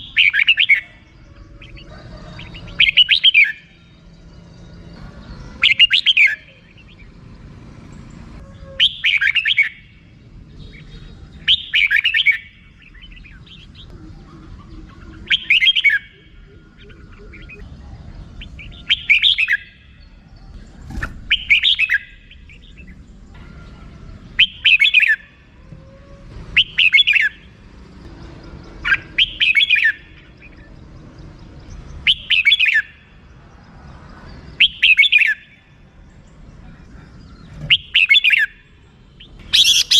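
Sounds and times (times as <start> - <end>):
bird chattering call: 8.6 - 9.8, 10.7 - 17.7, 37.0 - 39.9.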